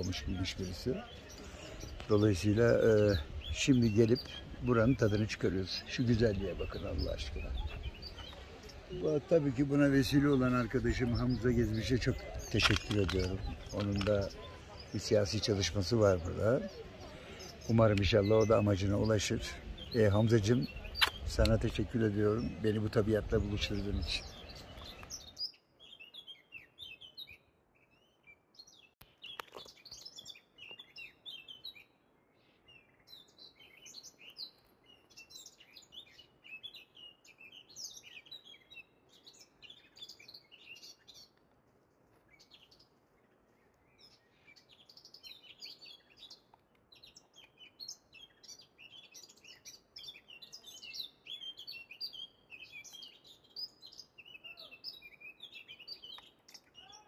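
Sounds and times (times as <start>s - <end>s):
songbirds chirping and twittering: 0.0s - 57.0s.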